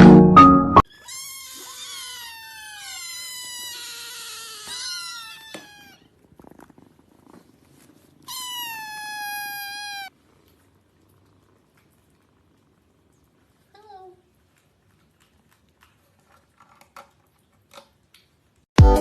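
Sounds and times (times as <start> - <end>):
cat meowing: 0.8 - 6.1, 8.2 - 10.1.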